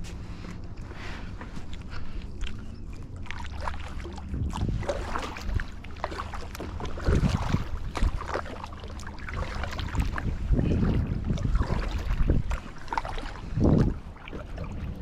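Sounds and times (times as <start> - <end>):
paddle splashes and drips: 1.0 - 15.0
wind rumble on microphone: 3.8 - 15.0.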